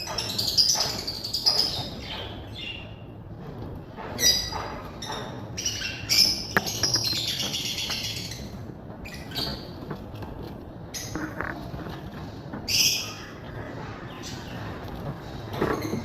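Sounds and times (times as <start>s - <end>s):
pet birds chirping and calling: 4.1s - 10.0s, 12.6s - 16.0s.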